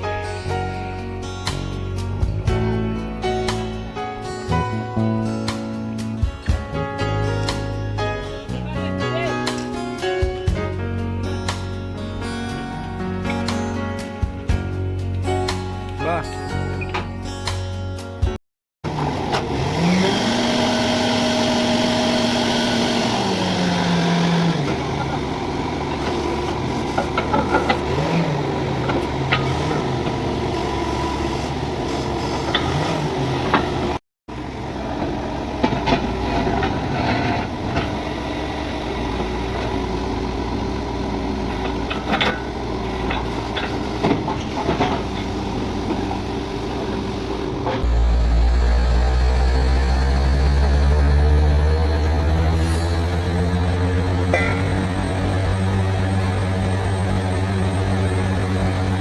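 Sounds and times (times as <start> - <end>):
drilling rig engine revving: 18.8 - 59.0.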